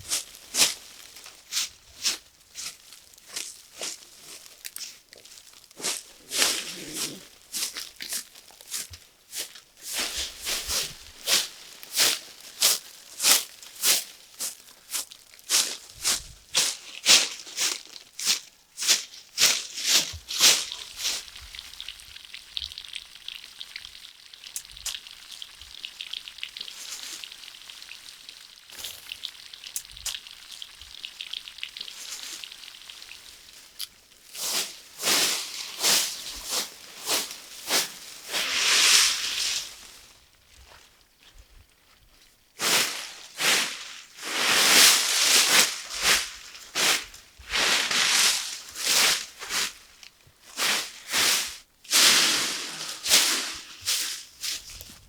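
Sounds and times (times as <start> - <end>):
food sizzling in hot oil: 20.5 - 40.1.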